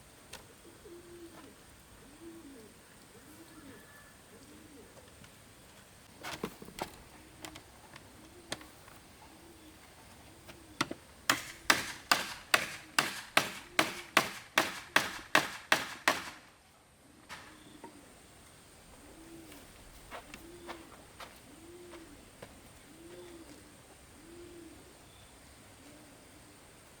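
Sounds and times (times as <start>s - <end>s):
dove cooing: 0.4s - 5.5s, 6.7s - 11.1s, 12.1s - 14.3s, 17.0s - 26.9s
tool striking wood: 11.3s - 16.4s.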